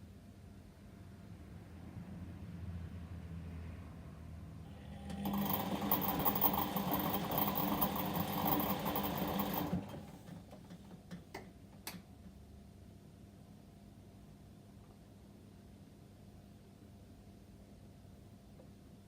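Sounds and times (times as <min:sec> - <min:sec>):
washing machine drum turning: 0:05.1 - 0:10.2.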